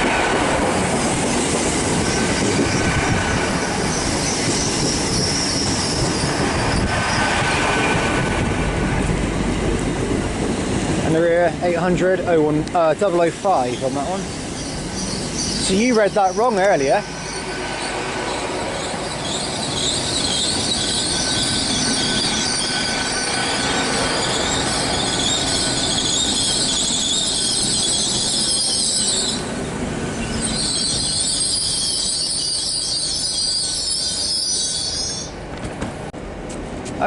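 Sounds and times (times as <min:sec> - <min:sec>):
train rumble: 0:00.0 - 0:37.0
train wheels squealing: 0:01.2 - 0:07.5, 0:13.5 - 0:35.4.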